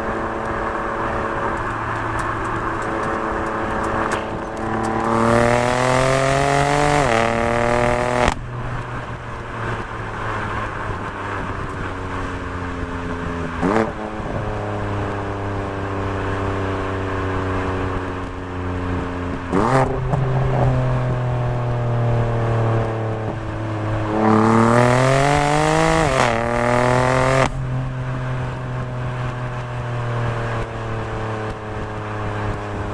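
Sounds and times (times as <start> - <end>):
car engine revving: 0.0 - 8.6, 19.2 - 32.9.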